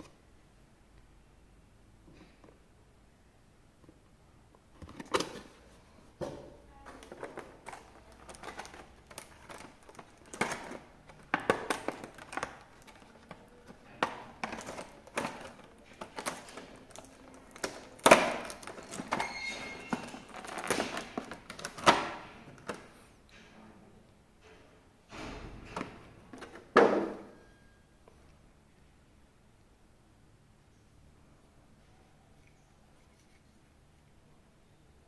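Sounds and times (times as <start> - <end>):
packaging clicks and rustles: 6.9 - 22.9.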